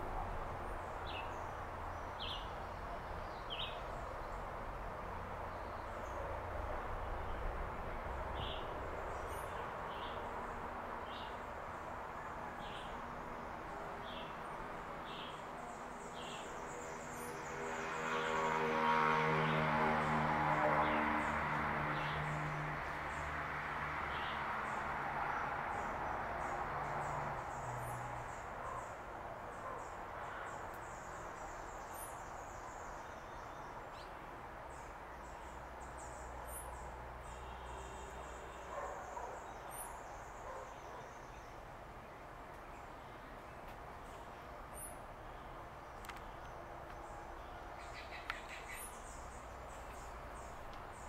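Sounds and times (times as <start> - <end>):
steady outdoor hiss: 0.0 - 51.0
bird chirps and calls: 47.8 - 49.2.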